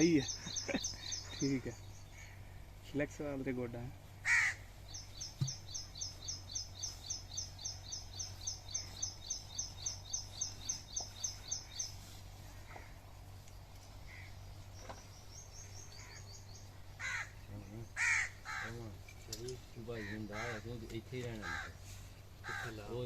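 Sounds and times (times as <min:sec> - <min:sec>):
small bird chirping: 0:00.0 - 0:02.8, 0:04.6 - 0:18.3.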